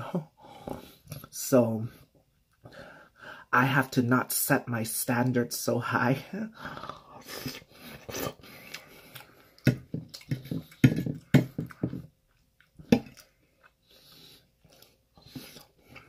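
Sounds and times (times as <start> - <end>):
chewing food: 6.8 - 16.0.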